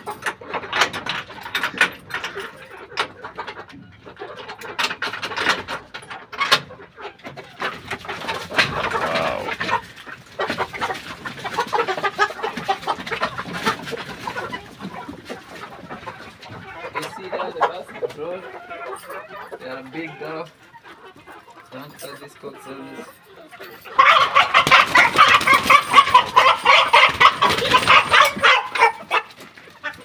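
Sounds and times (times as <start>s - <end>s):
chickens clucking and calling: 0.0s - 30.0s.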